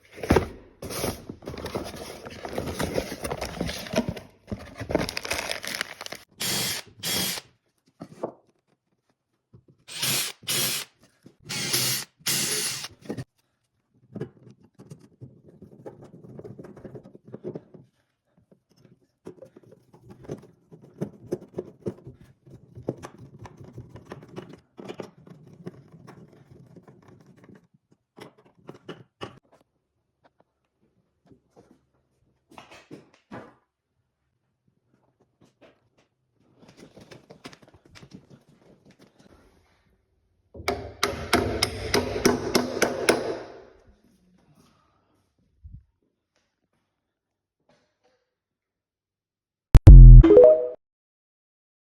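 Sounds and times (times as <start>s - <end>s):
power drill driving screws: 6.4s - 7.4s, 9.9s - 10.9s, 11.5s - 13.0s.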